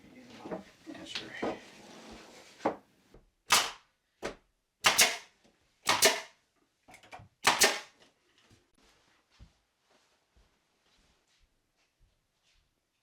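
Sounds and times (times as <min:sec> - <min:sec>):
nail gun firing into wood: 0:03.5 - 0:03.9, 0:04.8 - 0:06.4, 0:07.4 - 0:08.0.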